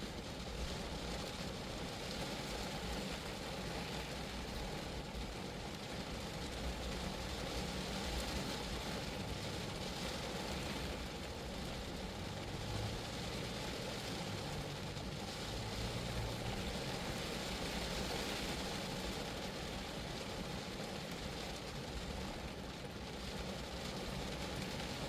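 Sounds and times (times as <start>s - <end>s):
rain on car body and windows: 0.0s - 25.0s.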